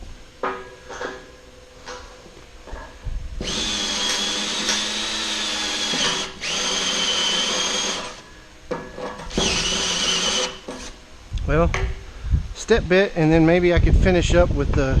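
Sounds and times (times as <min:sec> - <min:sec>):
electric drill whining: 0:03.4 - 0:08.3, 0:09.3 - 0:10.9.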